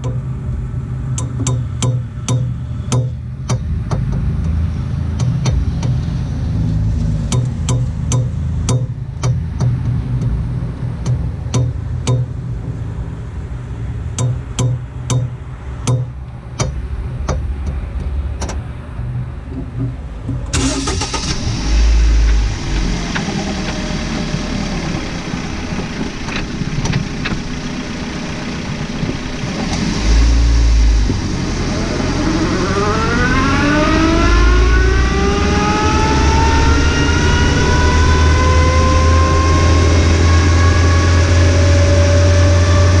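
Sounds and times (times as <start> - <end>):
car engine accelerating: 19.1 - 43.0.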